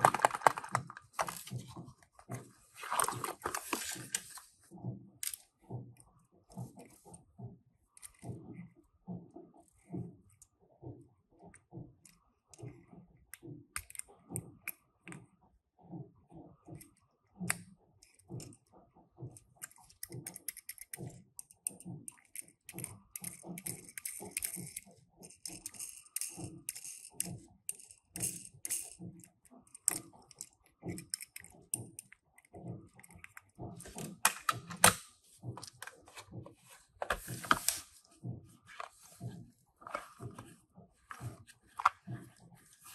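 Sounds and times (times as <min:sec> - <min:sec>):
packaging rustling: 0:00.0 - 0:01.7, 0:02.7 - 0:04.5.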